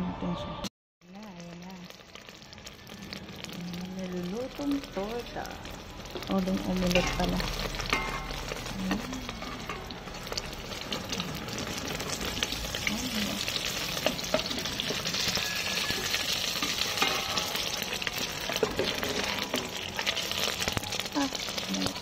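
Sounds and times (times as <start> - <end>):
omelette sizzling in oil: 1.0 - 22.0
metal spoon scraping a pot: 6.1 - 20.3.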